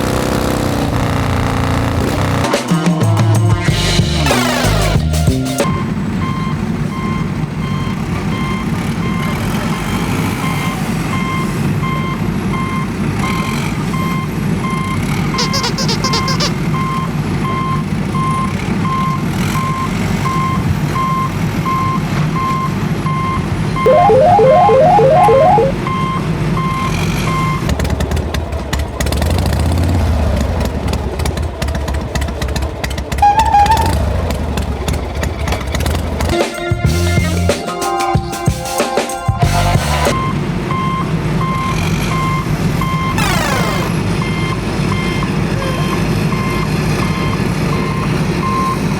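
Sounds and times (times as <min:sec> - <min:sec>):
warbling warning tone: 0:15.4 - 0:16.5, 0:23.9 - 0:25.9, 0:43.2 - 0:44.0
reversing alarm beeping: 0:20.4 - 0:26.2, 0:40.2 - 0:48.9.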